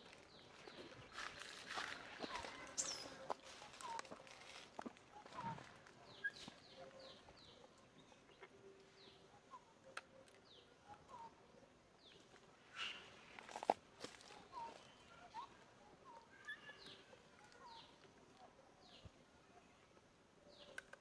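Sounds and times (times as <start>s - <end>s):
faint birdsong: 0.0s - 21.0s
bird chirps: 0.1s - 4.1s, 5.2s - 11.3s, 12.0s - 13.2s, 14.5s - 18.0s.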